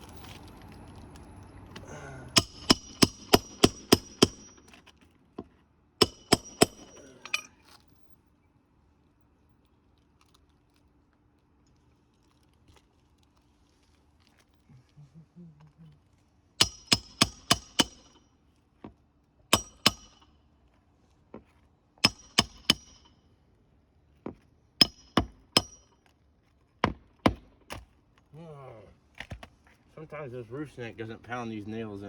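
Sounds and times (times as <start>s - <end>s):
hammer striking roofing nails: 2.4s - 4.8s, 6.0s - 7.2s, 16.6s - 18.2s, 19.5s - 20.3s, 22.0s - 23.1s, 24.3s - 25.9s, 26.8s - 27.8s.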